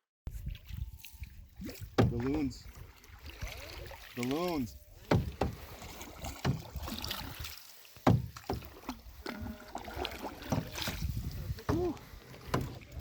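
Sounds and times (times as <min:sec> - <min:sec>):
water washing: 0:01.6 - 0:13.0
paddles knocking against canoe: 0:01.9 - 0:03.4, 0:04.9 - 0:13.0.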